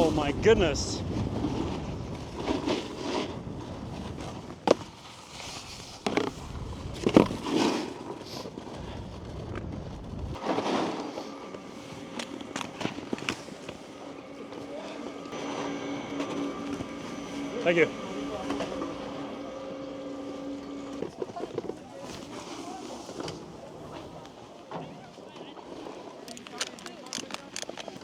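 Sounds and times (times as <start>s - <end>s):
snowboard scraping over snow: 0.0s - 26.3s.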